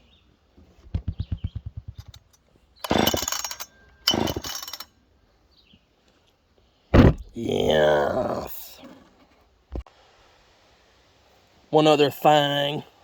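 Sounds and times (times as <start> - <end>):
engine compression pulses: 0.8 - 4.8
chainsaw starter cord pulls: 1.4 - 4.9.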